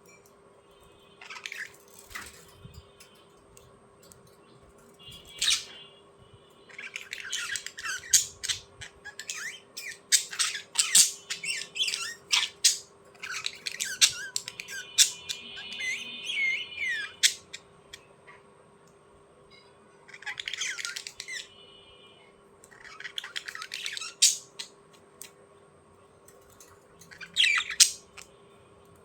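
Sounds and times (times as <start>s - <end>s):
faint steady hum: 0.0s - 29.0s
bird squawking and chirping: 1.2s - 2.4s, 5.1s - 5.9s, 6.7s - 18.4s, 20.0s - 21.6s, 22.7s - 24.8s, 27.0s - 28.3s.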